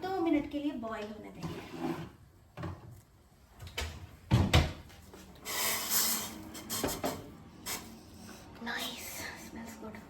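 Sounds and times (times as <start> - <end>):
short hissing scrape: 5.4 - 7.0.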